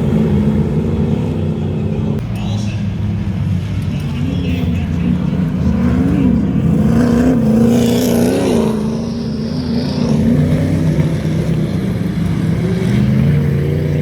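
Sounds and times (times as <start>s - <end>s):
race car engines revving: 0.0s - 14.0s.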